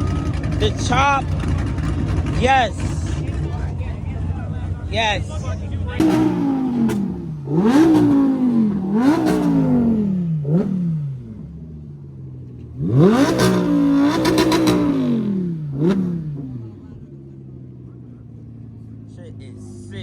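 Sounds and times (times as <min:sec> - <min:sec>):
car engine revving: 0:00.0 - 0:20.0
exhaust pops: 0:05.4 - 0:09.8.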